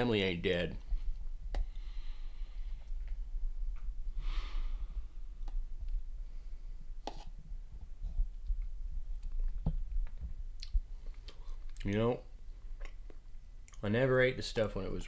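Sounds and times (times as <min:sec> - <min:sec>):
long breath out: 0:01.6 - 0:02.9, 0:04.1 - 0:05.4.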